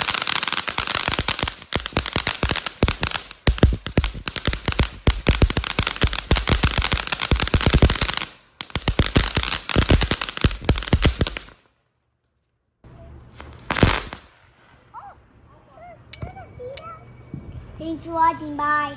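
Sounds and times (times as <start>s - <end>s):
fireworks cracking and popping: 0.0s - 11.8s, 13.0s - 14.8s.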